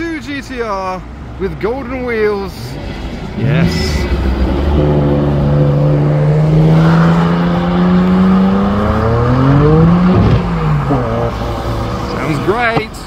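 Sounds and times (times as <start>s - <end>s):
car engine accelerating hard: 3.3s - 12.8s.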